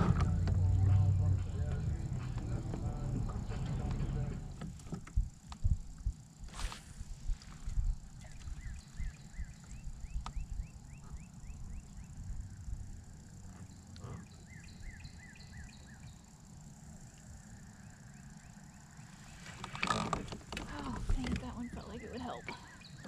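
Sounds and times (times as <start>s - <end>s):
steady low rumble: 0.0s - 19.4s
bird calling slurred notes: 8.2s - 12.6s.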